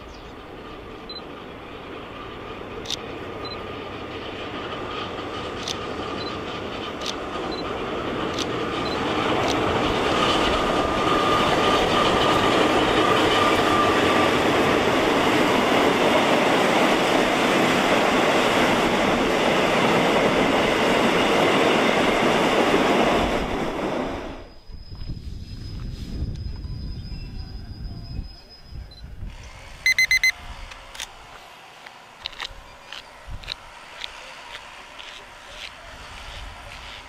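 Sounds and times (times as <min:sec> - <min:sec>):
train wheels rolling on rails: 0:00.0 - 0:28.6, 0:29.2 - 0:37.0
thin steady whine: 0:29.8 - 0:37.0.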